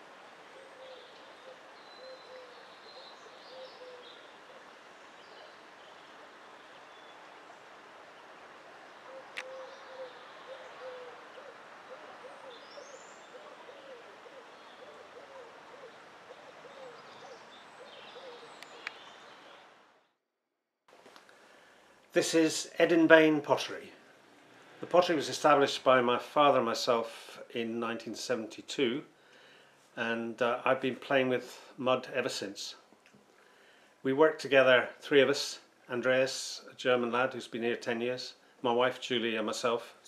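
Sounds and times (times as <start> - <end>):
songbird chirps: 0.0 - 20.2
bird cooing: 0.5 - 6.1, 9.0 - 19.6
faint hiss: 20.9 - 40.0.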